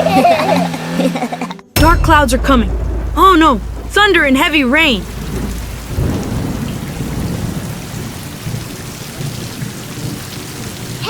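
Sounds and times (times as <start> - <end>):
thunder rumbling: 1.8 - 11.0
heavy rain hissing: 2.3 - 11.0.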